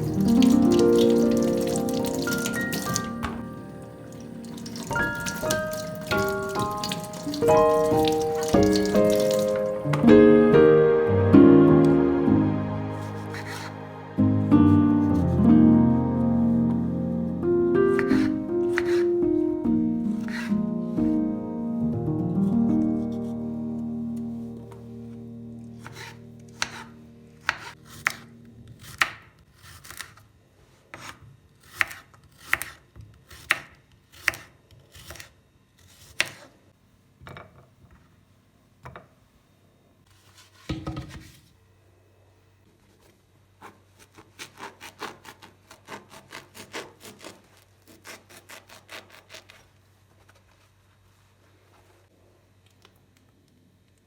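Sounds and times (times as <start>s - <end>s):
background music: 0.0s - 27.5s
knife chopping on cutting board: 0.4s - 3.5s, 13.0s - 13.7s, 17.9s - 19.2s, 20.0s - 20.6s, 25.8s - 30.2s, 31.0s - 35.3s, 35.9s - 36.5s, 40.3s - 41.4s.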